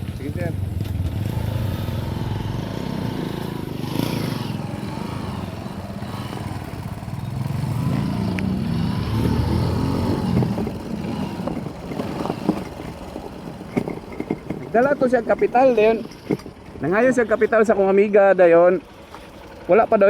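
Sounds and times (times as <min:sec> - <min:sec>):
motor vehicle engine running: 0:00.0 - 0:20.0.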